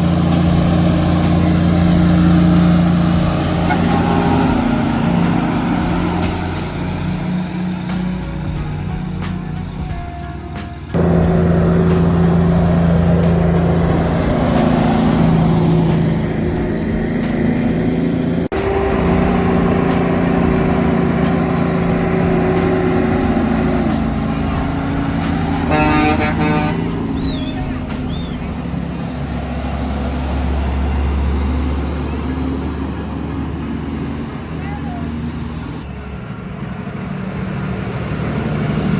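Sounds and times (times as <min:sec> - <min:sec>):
truck horn blast: 0:00.0 - 0:29.0
heavy truck engine droning: 0:00.0 - 0:38.9.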